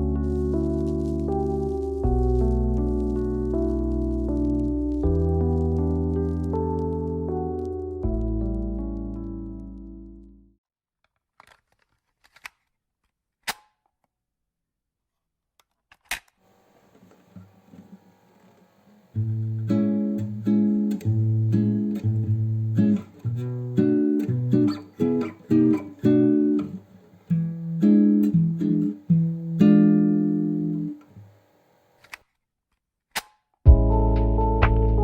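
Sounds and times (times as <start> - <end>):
plucked guitar music: 0.0 - 10.4, 19.2 - 31.0, 33.7 - 35.0.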